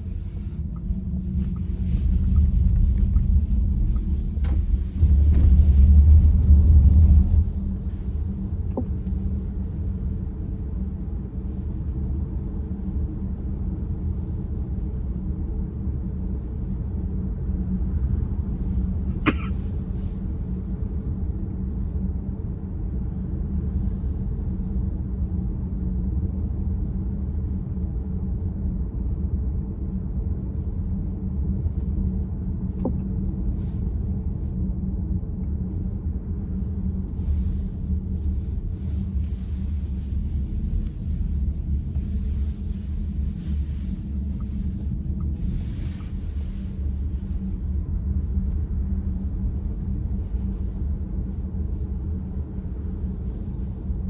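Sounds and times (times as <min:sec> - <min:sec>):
car cabin rumble: 0:00.0 - 0:10.8, 0:31.4 - 0:47.8.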